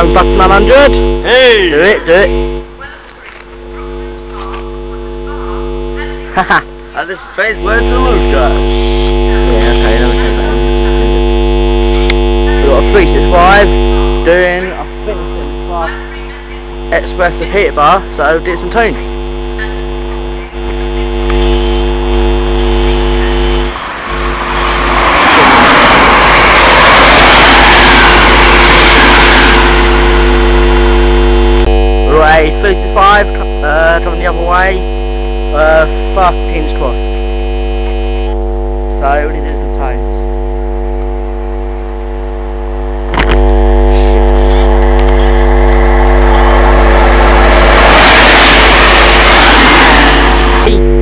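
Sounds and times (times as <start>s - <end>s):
electrical hum: 0.0s - 51.0s
wheel and rail rush: 23.7s - 30.4s.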